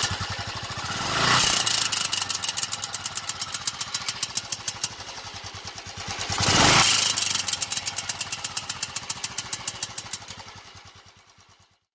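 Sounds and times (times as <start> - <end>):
motorcycle engine clattering: 0.0 - 11.7.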